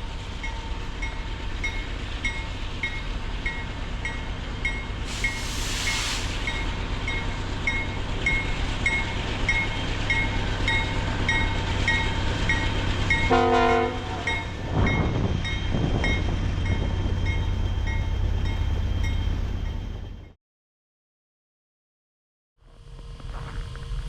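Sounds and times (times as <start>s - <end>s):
diesel locomotive rumbling: 0.0s - 20.4s
locomotive horn blast: 13.2s - 14.5s.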